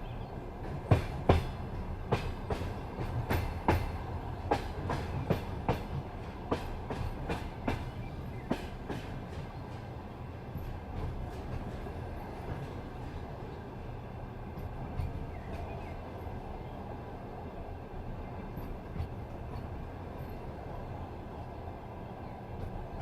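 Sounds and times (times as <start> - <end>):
low rolling rumble of train: 0.0 - 23.0
train wheels clicking over rail joints: 0.6 - 13.5, 14.3 - 16.4, 18.0 - 20.9.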